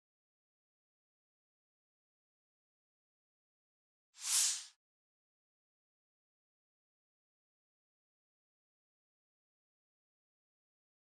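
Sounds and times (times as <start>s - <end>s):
short whoosh: 4.2s - 4.7s.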